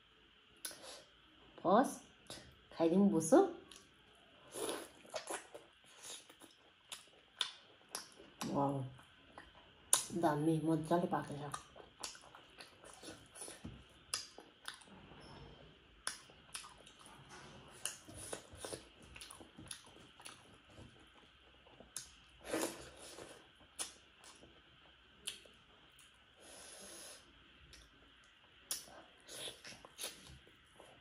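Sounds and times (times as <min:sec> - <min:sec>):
chewing food: 0:04.6 - 0:10.1, 0:11.5 - 0:15.4, 0:16.0 - 0:26.2.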